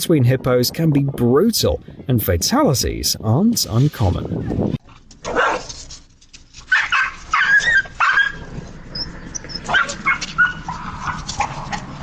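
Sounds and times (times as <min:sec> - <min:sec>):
dog barking and yipping: 0:05.2 - 0:05.7, 0:06.7 - 0:11.8.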